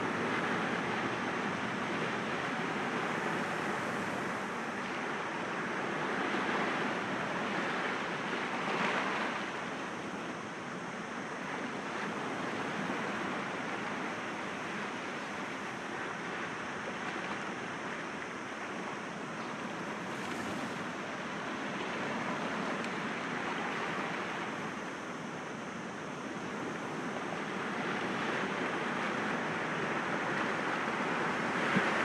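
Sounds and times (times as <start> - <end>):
sea waves breaking against rocks: 19.7 - 22.7.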